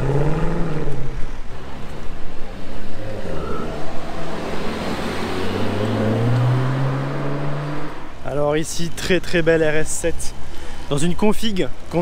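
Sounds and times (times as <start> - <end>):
car engine running low: 0.0 - 8.1
car approaching: 0.0 - 12.0
street traffic: 0.0 - 12.0.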